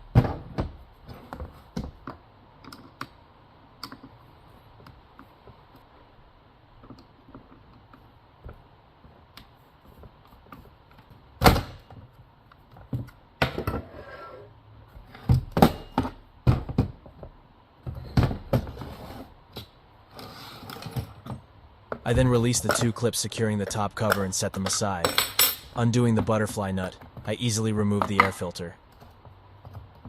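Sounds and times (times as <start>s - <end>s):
plastic parts knocking and clattering: 15.2s - 18.8s.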